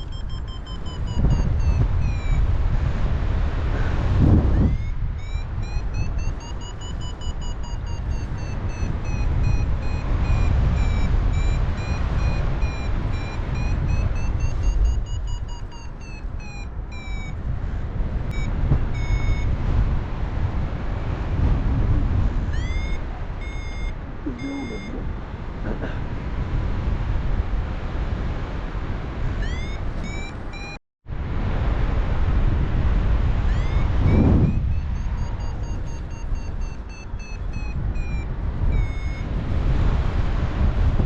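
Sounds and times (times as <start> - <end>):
variometer tone and beeps: 0.0 - 2.7, 4.2 - 17.5, 18.3 - 19.6, 22.5 - 25.1, 29.4 - 30.8, 33.5 - 39.4
wind rushing over microphone: 0.0 - 41.0.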